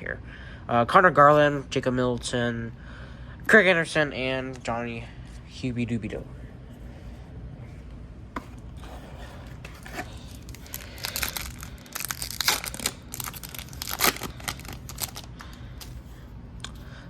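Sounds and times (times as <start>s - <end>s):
card pack wrapper tearing and crinkling: 9.7s - 15.9s.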